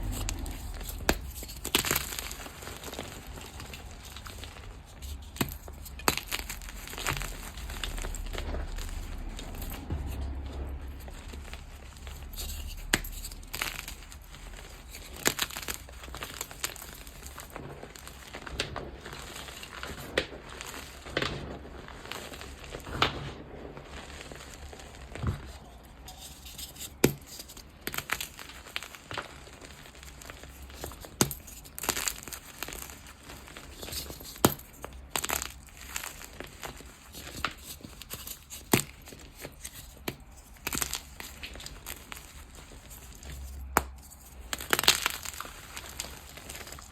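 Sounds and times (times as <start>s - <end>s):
chalk crunching by hand: 0.0s - 18.4s
powdery rustle: 0.0s - 46.9s.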